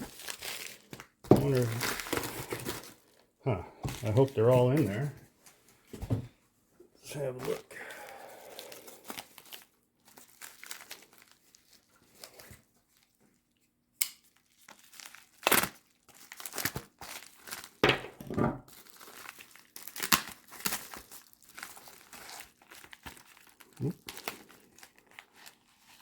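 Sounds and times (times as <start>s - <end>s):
packing material crinkling: 0.0s - 3.2s, 7.4s - 13.3s, 14.2s - 17.8s, 18.6s - 26.0s.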